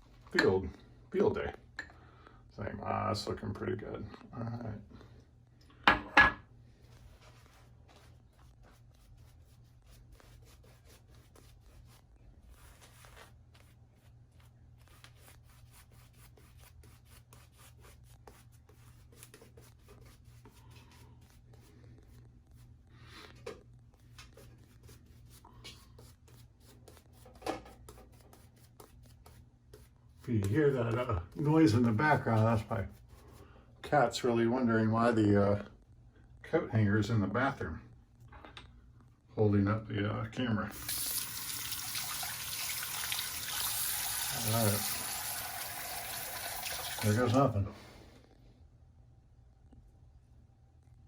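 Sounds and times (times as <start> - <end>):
rubbing and handling noises: 6.7 - 34.0.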